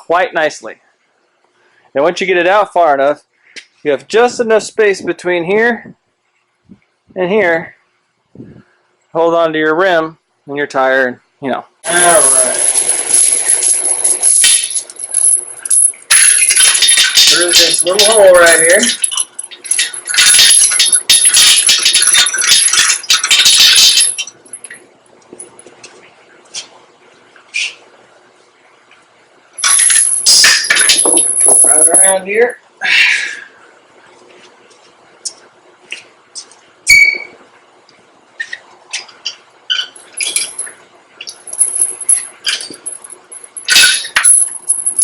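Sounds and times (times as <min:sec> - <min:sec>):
loose metal rattling and clinking: 0:11.9 - 0:24.8, 0:29.6 - 0:32.2, 0:40.0 - 0:45.0.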